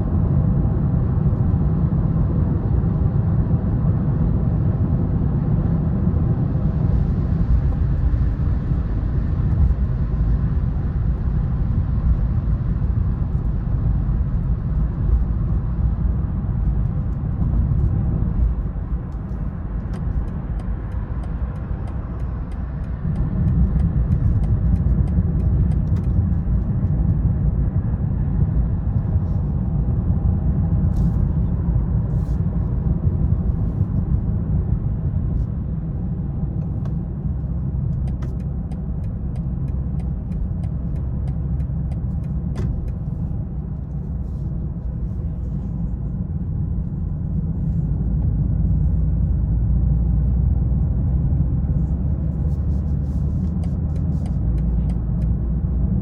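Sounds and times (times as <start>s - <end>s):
car engine rumble: 0.0s - 56.0s
road noise: 0.0s - 56.0s.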